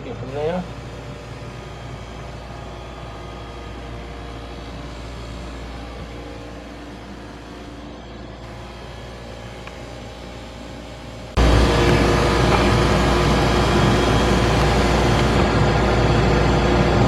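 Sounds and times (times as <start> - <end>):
ice machine humming: 0.0 - 15.7.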